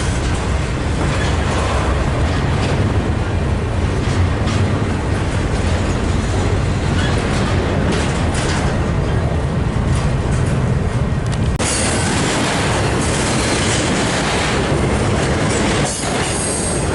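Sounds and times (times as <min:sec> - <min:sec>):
train rumbling past: 0:00.0 - 0:16.9
wheels clicking over rail joints: 0:00.0 - 0:16.9.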